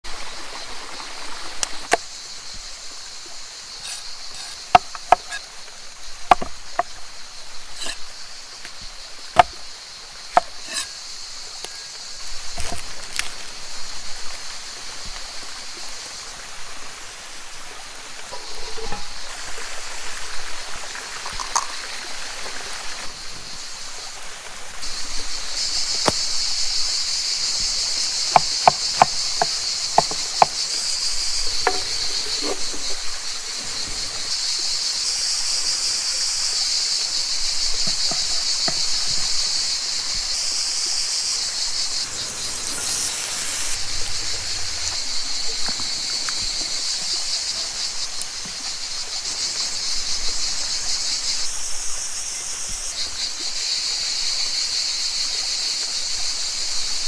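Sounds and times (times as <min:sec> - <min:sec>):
high-pitched insect chorus: 0:00.0 - 0:57.0
sharp knocks and clicks: 0:06.3 - 0:06.9, 0:28.3 - 0:30.6.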